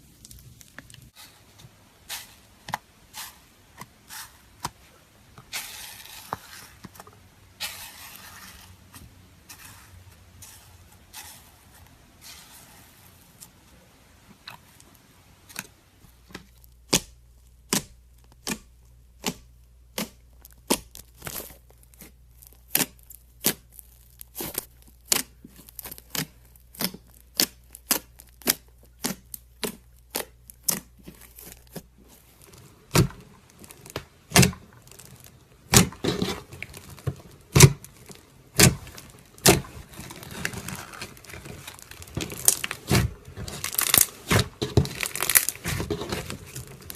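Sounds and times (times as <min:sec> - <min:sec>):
slime crackling and stretching: 0:00.0 - 0:46.9.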